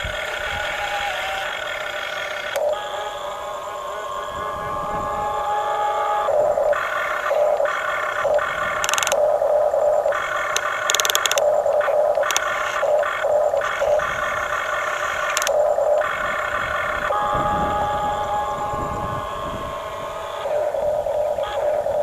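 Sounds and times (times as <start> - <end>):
toy gear motors whining: 0.0 - 22.0
harsh gear rasps: 6.3 - 17.2.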